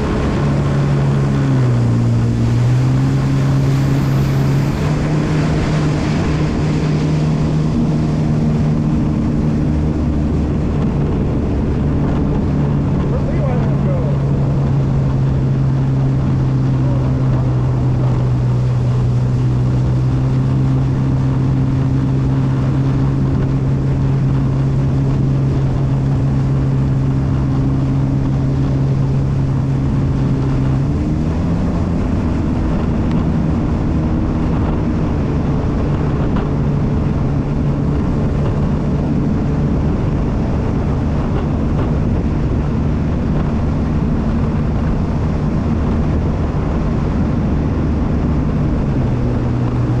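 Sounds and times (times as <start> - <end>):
jet ski engine running: 0.0 - 50.0.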